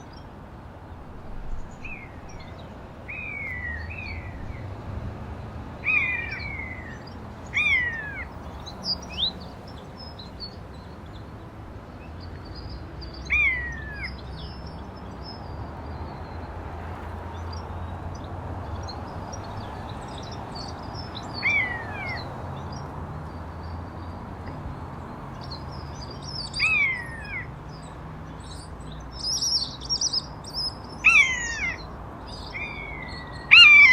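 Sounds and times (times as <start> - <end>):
birds calling downward: 5.8 - 10.4, 17.4 - 22.9, 24.4 - 33.9.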